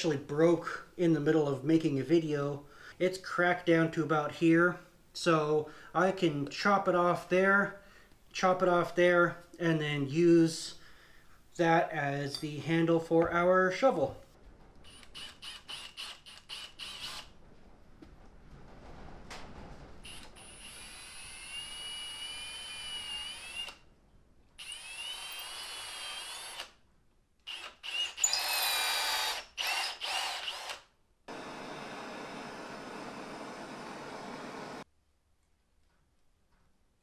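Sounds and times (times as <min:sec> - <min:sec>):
electric drill whining: 0:14.9 - 0:17.3, 0:20.0 - 0:23.8, 0:24.6 - 0:26.8, 0:27.5 - 0:34.8.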